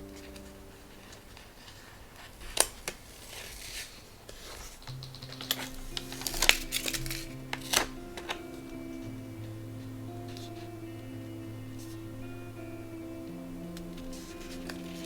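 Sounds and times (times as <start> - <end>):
soft background music: 0.0 - 1.8, 4.9 - 15.0.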